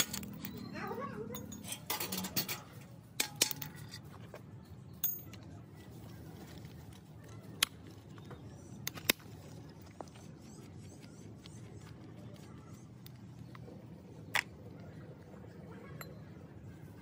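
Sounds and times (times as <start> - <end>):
metallic clinks and taps: 1.3 - 4.1, 5.0 - 5.5.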